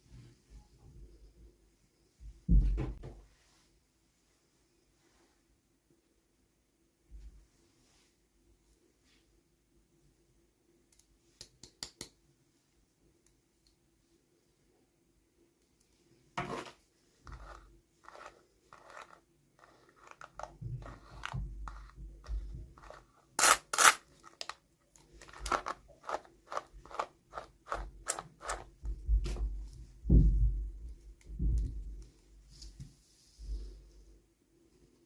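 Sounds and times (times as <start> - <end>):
packaging clicks and crinkles: 22.8 - 28.6.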